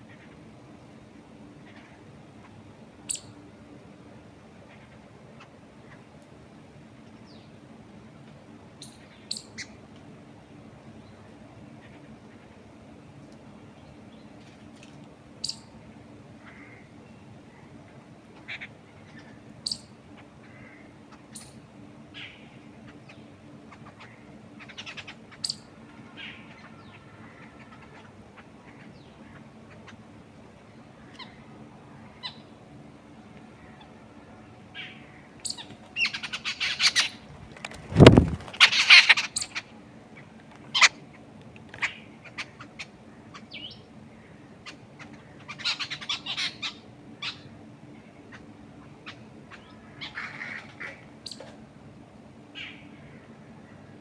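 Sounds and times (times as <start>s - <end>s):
wild birds chirping: 0.0s - 7.9s, 8.6s - 54.0s
faint low hum: 0.0s - 54.0s
rapid raspy bird calls: 16.4s - 16.9s, 17.8s - 30.2s, 34.8s - 41.1s, 41.8s - 51.4s.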